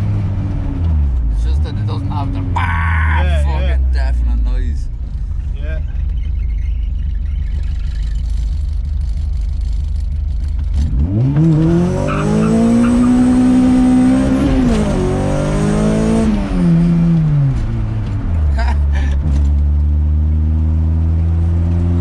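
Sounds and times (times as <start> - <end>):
exhaust rumble: 0.0 - 11.6
car engine revving: 0.0 - 22.0.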